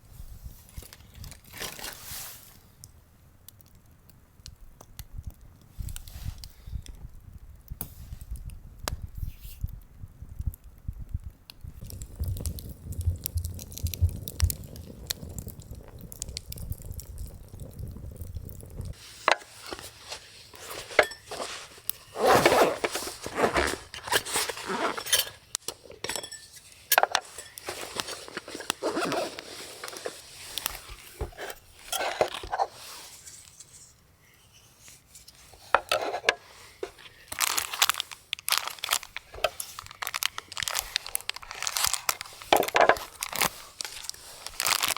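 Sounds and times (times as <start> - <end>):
crunching and rustling: 0.6 - 2.7, 11.7 - 34.0, 35.3 - 44.9
cookware clinking and knocking: 25.0 - 27.6.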